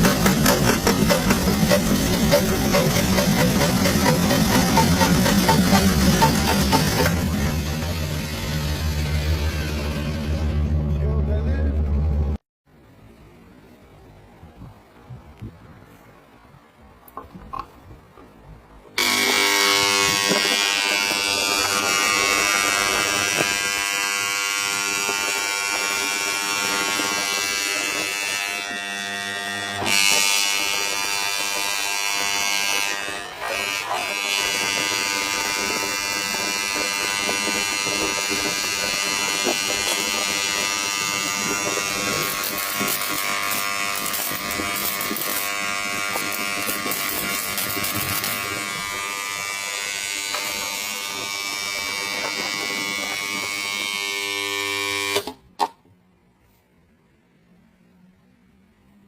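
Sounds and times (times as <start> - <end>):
small electric motor buzzing: 0.0 - 10.8, 19.0 - 55.4.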